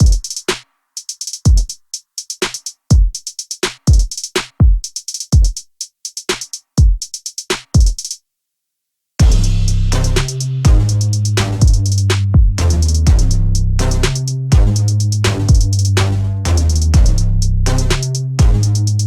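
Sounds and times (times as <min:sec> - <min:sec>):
deep kick drums: 0:00.0 - 0:00.3, 0:03.9 - 0:04.8, 0:09.2 - 0:19.0
hi-hat ticks: 0:00.0 - 0:08.2, 0:10.0 - 0:12.2, 0:12.8 - 0:19.0
electronic music: 0:09.2 - 0:19.0
held bass notes: 0:09.2 - 0:19.0.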